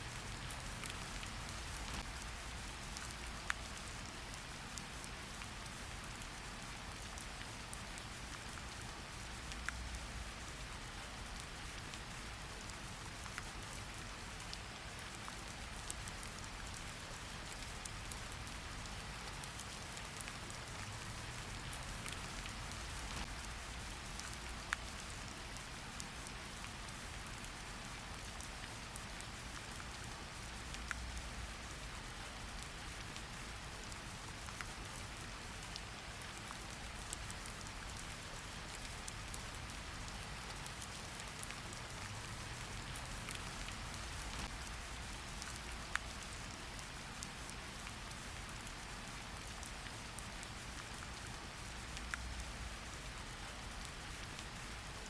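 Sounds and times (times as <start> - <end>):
steady rain hiss: 0.0 - 55.0
raindrops ticking: 0.1 - 6.3, 6.9 - 10.3, 14.4 - 33.3, 33.9 - 46.7.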